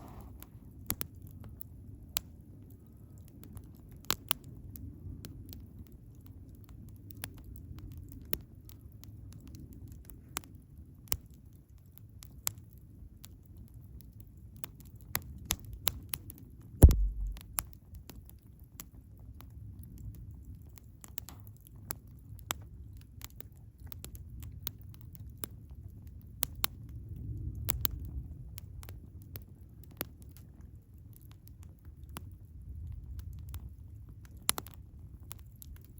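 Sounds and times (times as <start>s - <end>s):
loud thump with low boom: 16.8s - 17.6s
campfire crackling and popping: 16.8s - 17.7s, 28.6s - 35.9s
low rumble of flame: 16.8s - 18.6s, 19.3s - 35.9s.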